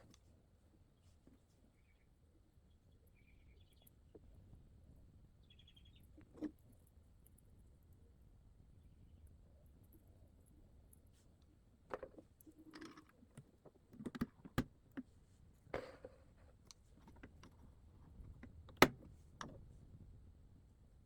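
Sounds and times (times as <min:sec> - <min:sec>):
small clicks and taps: 0:11.9 - 0:15.1.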